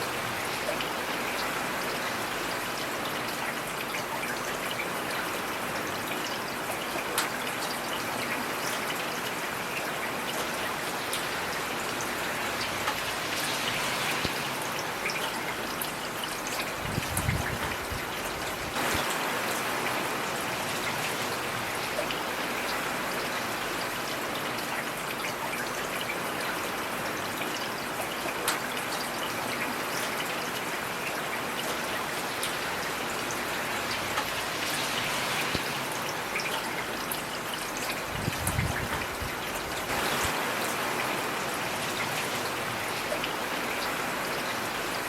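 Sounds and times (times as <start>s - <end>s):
heavy rain: 0.0s - 45.0s
raindrops ticking: 10.3s - 13.6s, 31.6s - 40.4s.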